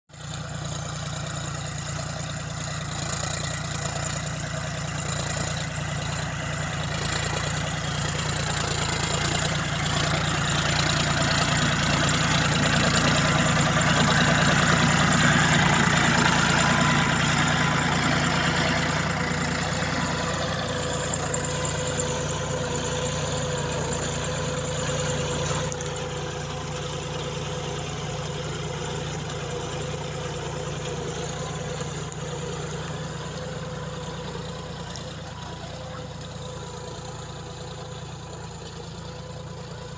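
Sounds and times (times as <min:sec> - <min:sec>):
tractor diesel engine running: 0:00.1 - 0:39.9.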